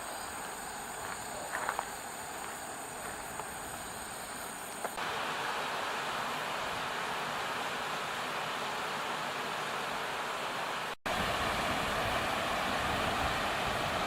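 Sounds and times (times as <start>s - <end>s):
insects chirring: 0.0s - 5.4s
soft footsteps: 0.9s - 5.0s
steady rushing noise: 1.9s - 14.0s.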